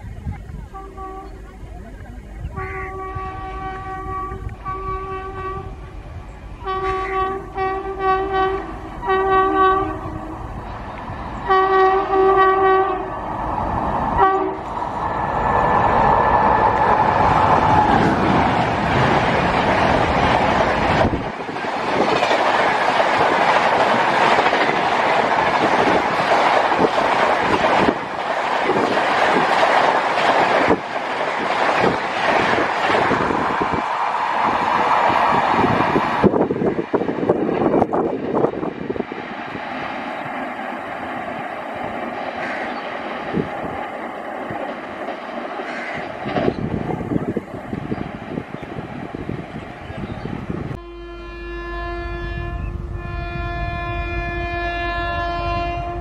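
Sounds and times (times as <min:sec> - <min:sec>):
train passing with rail clatter: 0:00.0 - 0:56.0
train air horn blasts: 0:00.8 - 0:01.5, 0:02.5 - 0:05.9, 0:06.6 - 0:10.6, 0:11.4 - 0:13.2, 0:14.2 - 0:14.7, 0:50.7 - 0:56.0.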